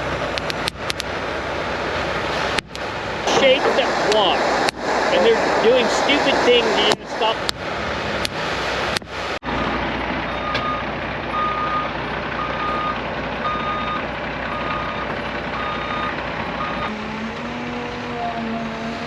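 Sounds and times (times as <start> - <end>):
engine running: 0.0 - 19.0
truck reversing alarm beeping: 9.5 - 17.8.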